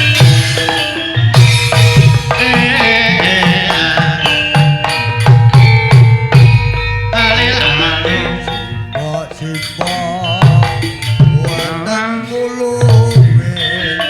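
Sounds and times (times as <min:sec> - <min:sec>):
hand drum: 0:00.0 - 0:14.0
metallophones ringing: 0:00.0 - 0:14.0
wavering melodic line: 0:00.0 - 0:14.0.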